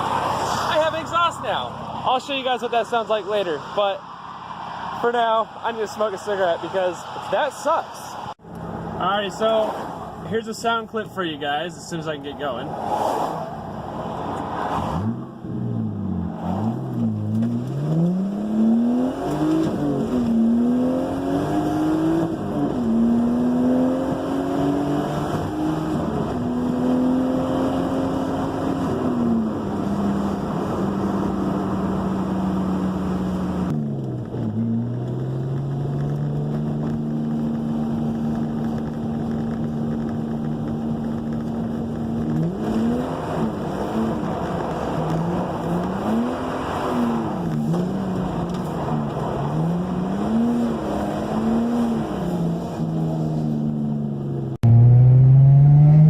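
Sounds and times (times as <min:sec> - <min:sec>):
car engine accelerating: 0:12.5 - 0:56.0.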